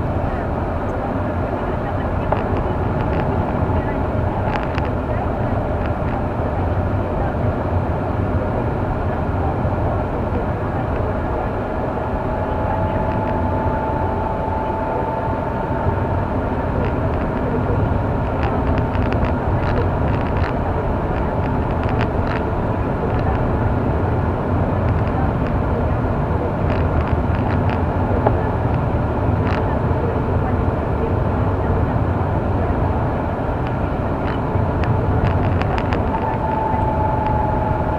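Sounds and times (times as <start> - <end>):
car engine and tyre noise: 0.0 - 37.9.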